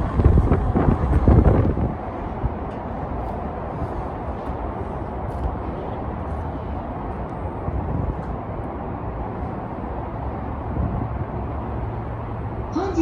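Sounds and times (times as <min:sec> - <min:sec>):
train rumbling past: 0:00.0 - 0:13.0
wind buffeting microphone: 0:00.0 - 0:13.0.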